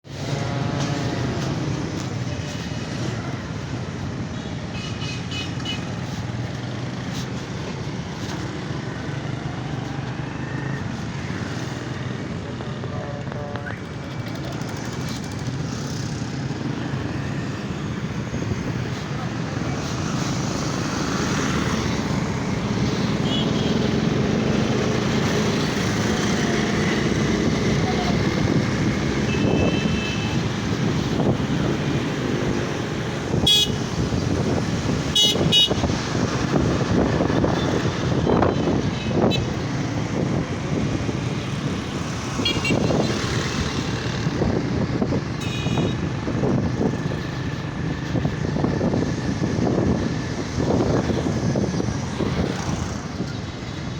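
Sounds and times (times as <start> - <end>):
motorcycle engine and wind noise: 0.1 - 53.9
car horns beeping: 33.4 - 33.8, 35.1 - 35.8.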